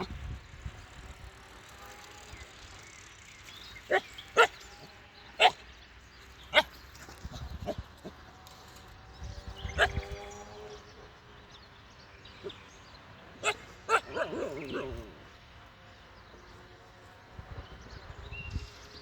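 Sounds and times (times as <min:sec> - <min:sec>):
puppy barking in sharp yaps: 0:06.5 - 0:06.7, 0:13.4 - 0:14.8.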